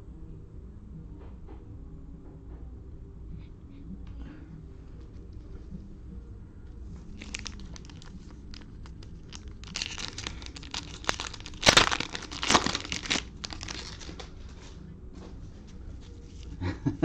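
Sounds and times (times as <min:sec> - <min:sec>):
cellophane wrapper crinkling: 0:07.2 - 0:14.3
wrapper ripping: 0:07.2 - 0:14.3.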